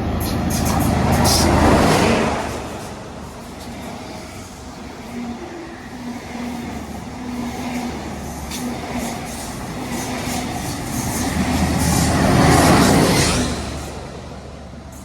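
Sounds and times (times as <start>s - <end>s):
locomotive engine humming: 0.0s - 15.0s
train wheels clicking over rails: 0.0s - 15.0s.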